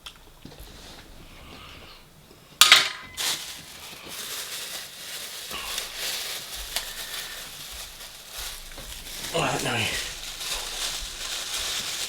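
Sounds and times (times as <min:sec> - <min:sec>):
scraping and rustling of containers: 0:00.2 - 0:12.0
cutlery clattering: 0:02.6 - 0:03.2.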